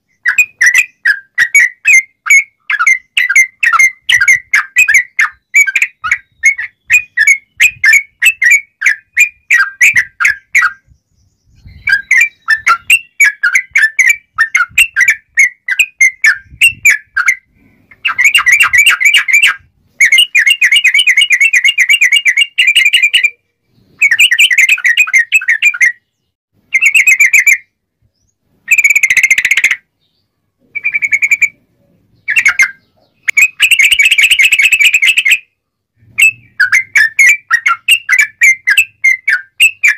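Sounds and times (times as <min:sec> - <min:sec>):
bird whistled notes: 0:00.0 - 0:29.7, 0:30.7 - 0:39.9
bird rapid trilled bursts: 0:11.7 - 0:23.4, 0:28.6 - 0:29.9, 0:30.8 - 0:39.9.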